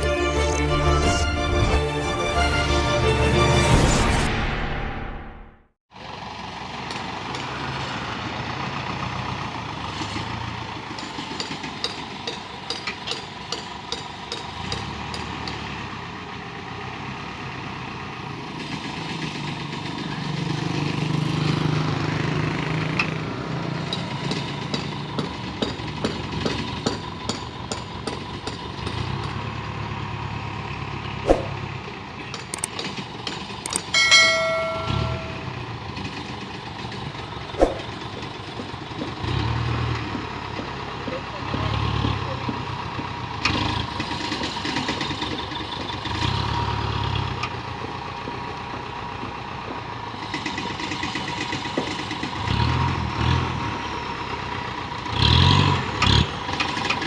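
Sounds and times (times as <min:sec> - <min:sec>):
dump truck engine running: 0:00.0 - 0:03.8, 0:05.9 - 0:57.0
horn-like tone: 0:00.0 - 0:05.2.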